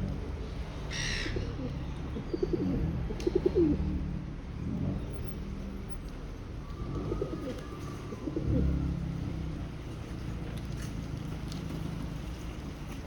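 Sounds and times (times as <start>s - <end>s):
pigeons cooing: 1.3s - 3.8s.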